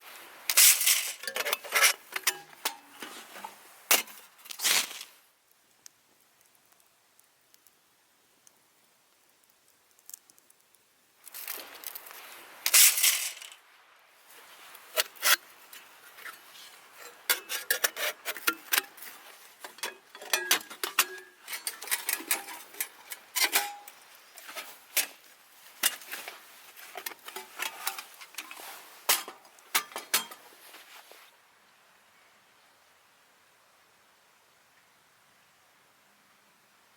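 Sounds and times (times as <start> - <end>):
metal pieces clinking together: 0.5 - 2.8, 12.7 - 13.6, 17.0 - 25.2, 25.8 - 30.4
metal scrape: 0.5 - 5.1, 11.3 - 13.6, 14.3 - 31.3.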